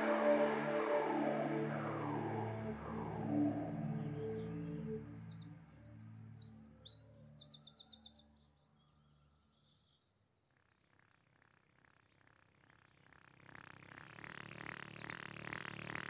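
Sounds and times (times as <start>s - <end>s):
held music notes: 0.0s - 5.2s.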